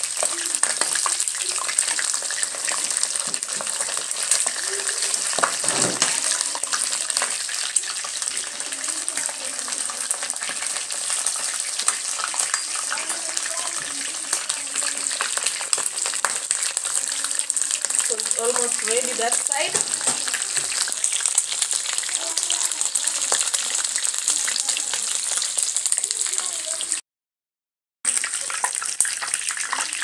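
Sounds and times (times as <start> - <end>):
chicken deep-frying in oil: 0.0 - 27.0, 28.0 - 30.0.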